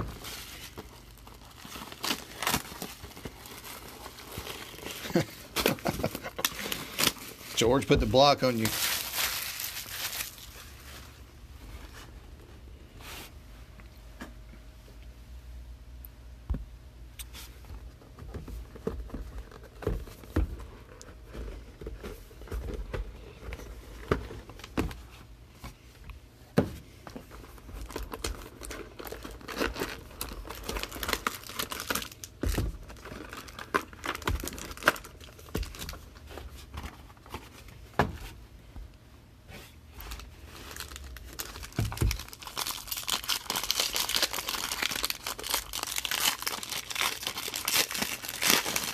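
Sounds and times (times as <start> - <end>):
plastic wrapping crinkling and tearing: 0.0 - 11.1, 27.3 - 36.3, 40.0 - 48.9.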